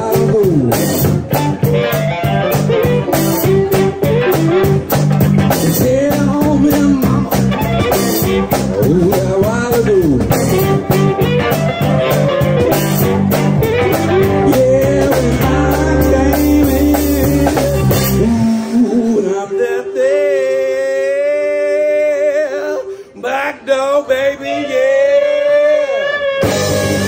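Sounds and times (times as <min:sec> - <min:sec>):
drum kit: 0:00.0 - 0:19.2, 0:26.4 - 0:27.0
bass: 0:00.0 - 0:19.5, 0:25.1 - 0:27.0
electric guitar bending notes: 0:00.0 - 0:19.6, 0:25.1 - 0:27.0.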